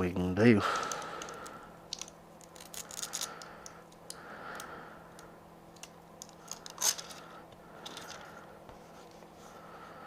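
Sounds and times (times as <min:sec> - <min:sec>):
faint steady hum: 0:00.0 - 0:10.0
hands handling plastic device clicks: 0:00.9 - 0:07.2.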